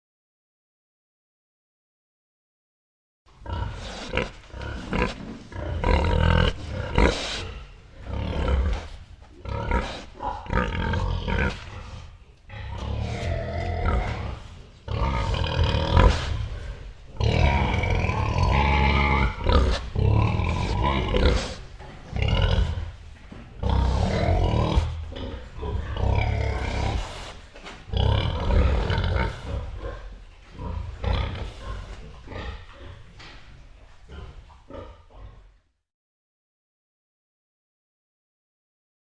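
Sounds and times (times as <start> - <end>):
pigs grunting: 3.4 - 33.5, 34.1 - 35.6.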